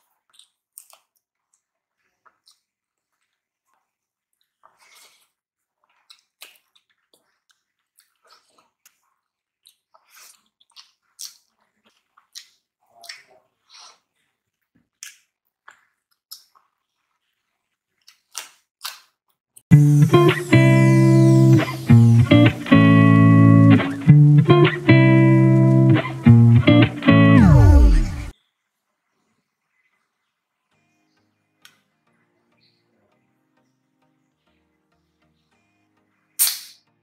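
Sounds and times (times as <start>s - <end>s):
person chewing food: 4.4s - 19.2s.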